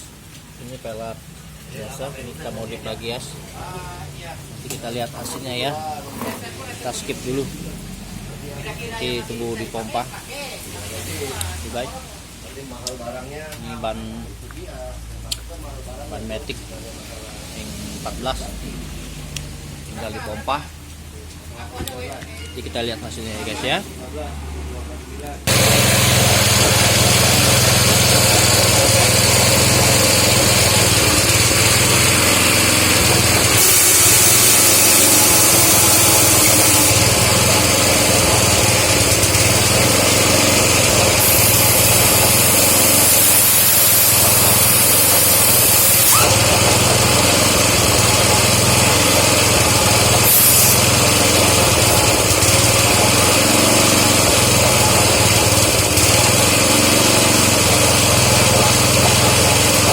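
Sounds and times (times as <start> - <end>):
air compressor motor running: 25.5 - 59.9
air line hissing: 25.5 - 59.9.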